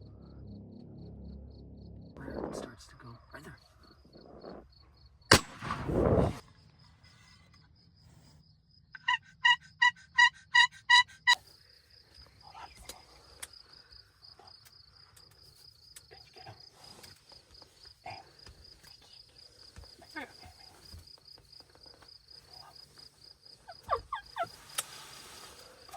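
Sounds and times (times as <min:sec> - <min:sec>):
high insect trill: 0:06.1 - 0:25.9
turkey yelps: 0:09.0 - 0:11.4, 0:23.7 - 0:24.7.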